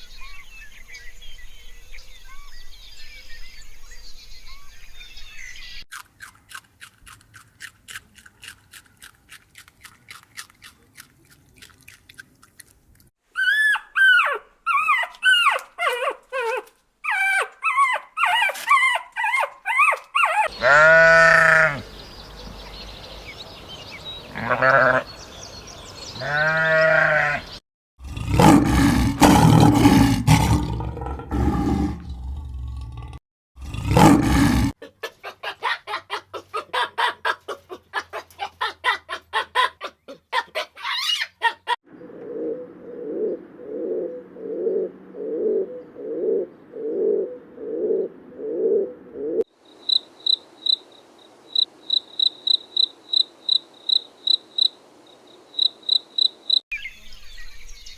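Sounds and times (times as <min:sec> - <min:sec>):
loud pitched animal calls: 0:17.1 - 0:27.6
loud harsh animal call: 0:20.4 - 0:27.6.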